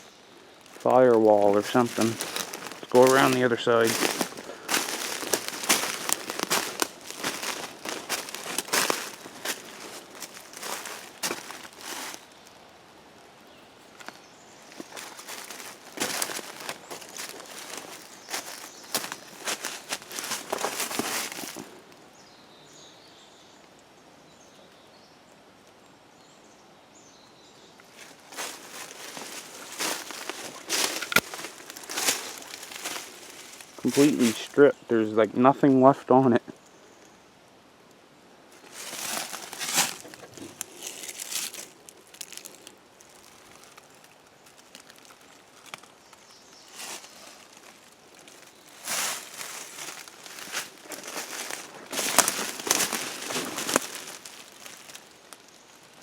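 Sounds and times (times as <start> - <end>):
footsteps crunching through dry leaves: 0.0 - 12.6, 13.9 - 21.9, 27.9 - 34.6, 38.5 - 56.0
faint birds chirping: 0.0 - 56.0.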